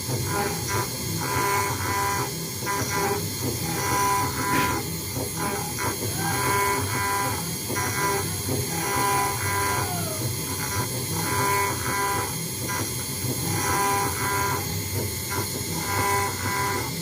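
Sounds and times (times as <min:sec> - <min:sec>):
spindle hum: 0:00.0 - 0:17.0
stepper motor tones: 0:00.0 - 0:17.0.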